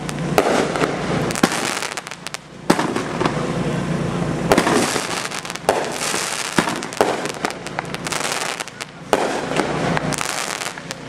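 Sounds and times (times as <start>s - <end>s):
fireworks bangs and pops: 0.0s - 3.7s, 4.4s - 11.0s
firecrackers crackling: 0.0s - 11.0s.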